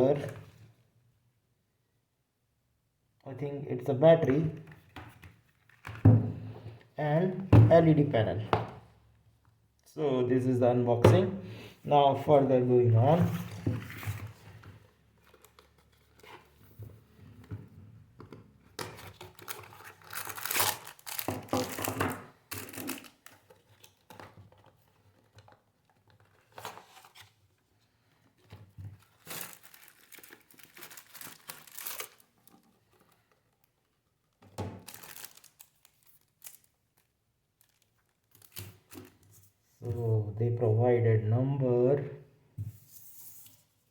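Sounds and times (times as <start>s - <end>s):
packaging crinkling and tearing: 18.8s - 24.3s, 29.0s - 33.7s, 34.8s - 39.3s.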